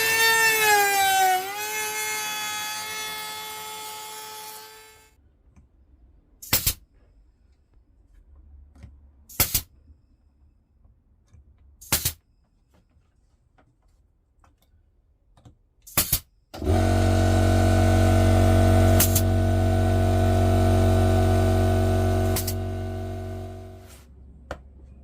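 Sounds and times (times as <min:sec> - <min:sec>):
power tool running with hum: 0:16.6 - 0:24.0.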